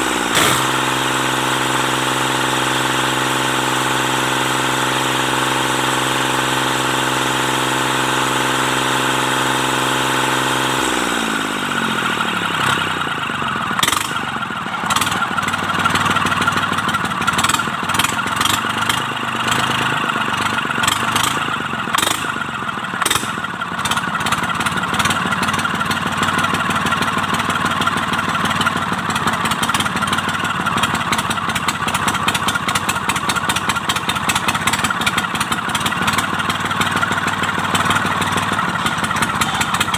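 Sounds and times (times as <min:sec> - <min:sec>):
diesel tractor engine: 0:00.0 - 0:39.9.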